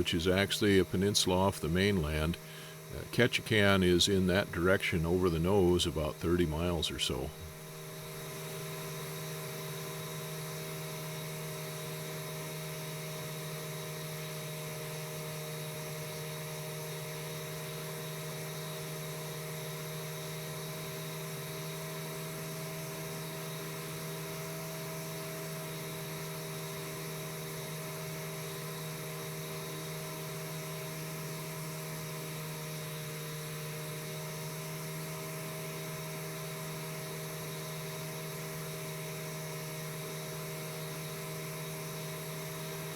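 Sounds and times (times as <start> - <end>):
airplane engine droning in cabin: 0.0 - 7.8.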